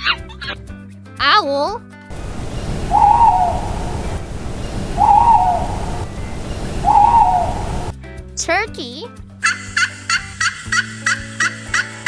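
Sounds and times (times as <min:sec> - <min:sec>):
owl hooting: 0:02.1 - 0:07.9
rushing background noise: 0:02.1 - 0:07.9.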